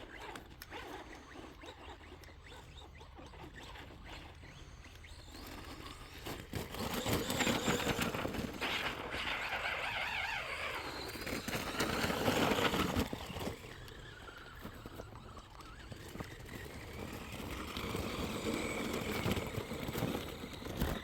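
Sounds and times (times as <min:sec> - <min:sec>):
electric motor whining: 0:00.0 - 0:21.0
tires churning snow: 0:05.6 - 0:21.0.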